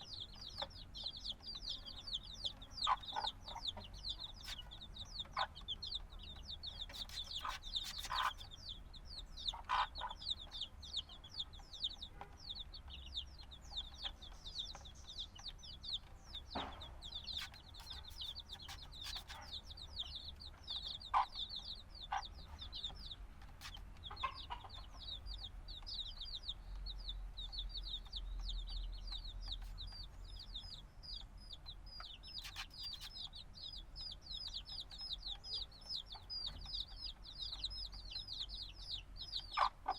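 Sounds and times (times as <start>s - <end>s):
chicks peeping: 0.0s - 39.9s
small taps and scratches: 6.8s - 8.4s, 16.4s - 19.6s, 32.4s - 33.2s.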